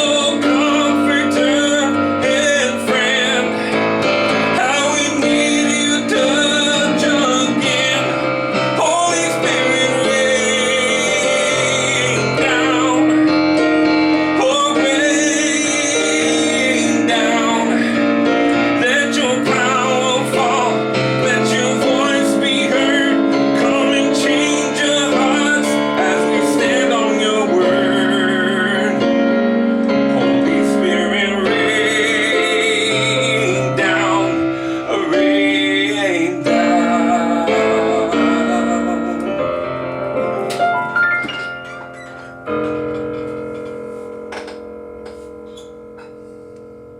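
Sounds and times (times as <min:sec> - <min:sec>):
piano chords: 0:00.0 - 0:46.9.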